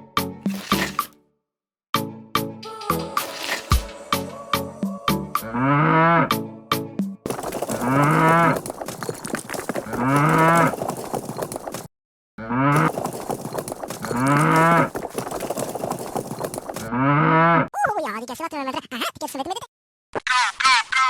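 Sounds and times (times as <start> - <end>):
cow mooing: 5.4 - 6.3.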